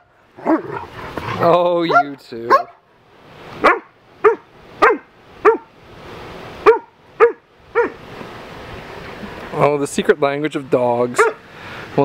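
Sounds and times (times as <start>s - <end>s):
dog barking: 1.9s - 2.8s, 3.6s - 5.7s, 6.6s - 8.0s, 11.2s - 11.4s.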